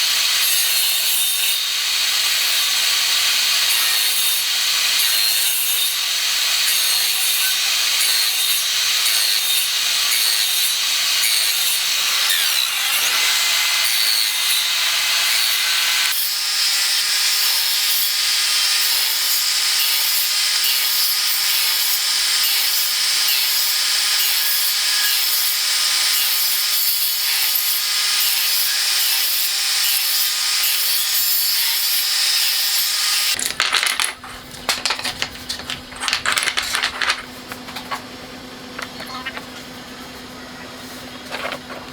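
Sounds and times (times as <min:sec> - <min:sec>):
power tool working wood: 0:00.0 - 0:17.5.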